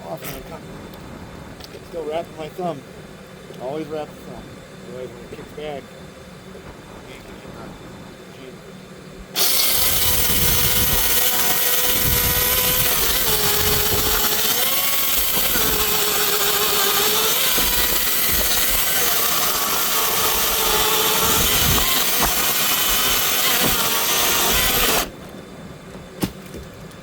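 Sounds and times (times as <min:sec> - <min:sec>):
chainsaw cutting wood: 0:09.4 - 0:25.2.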